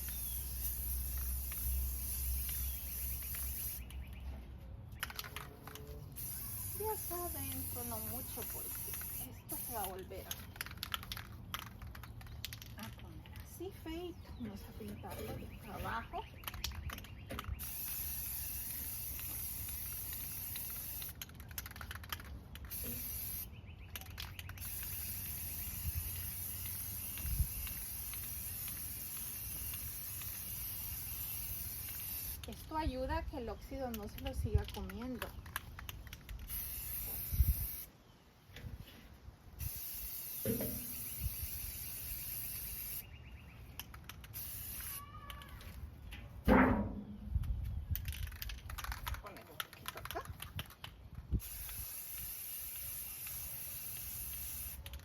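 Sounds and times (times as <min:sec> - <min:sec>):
aerosol spray can hissing: 0:00.0 - 0:04.0, 0:06.2 - 0:10.4, 0:17.6 - 0:21.2, 0:22.7 - 0:23.5, 0:24.5 - 0:32.6, 0:36.5 - 0:37.9, 0:39.6 - 0:43.1, 0:44.2 - 0:45.1, 0:51.4 - 0:54.8.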